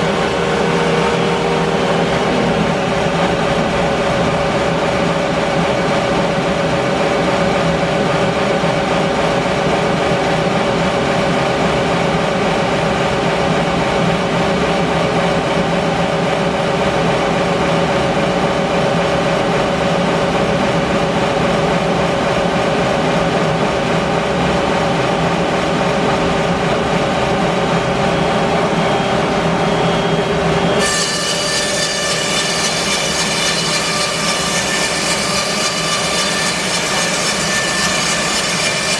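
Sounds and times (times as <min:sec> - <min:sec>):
band sawmill running: 0:00.0 - 0:38.9
high saw whine: 0:27.2 - 0:38.9.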